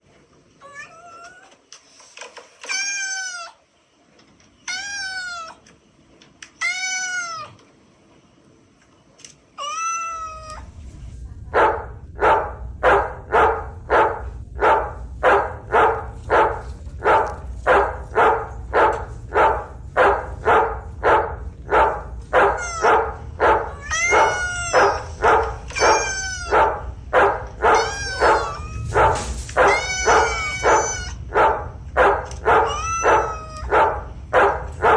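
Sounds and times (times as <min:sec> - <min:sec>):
toy cat meowing: 0:00.6 - 0:01.6, 0:02.6 - 0:03.6, 0:04.7 - 0:05.6, 0:06.5 - 0:07.6, 0:09.6 - 0:10.6, 0:25.7 - 0:26.5, 0:27.8 - 0:28.8, 0:29.7 - 0:31.2, 0:32.7 - 0:33.7
low motor hum: 0:10.1 - 0:34.9.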